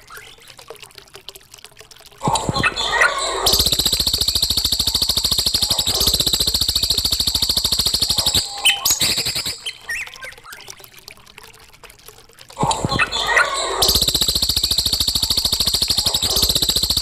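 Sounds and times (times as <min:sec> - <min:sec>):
bird call notes: 0:02.8 - 0:10.2.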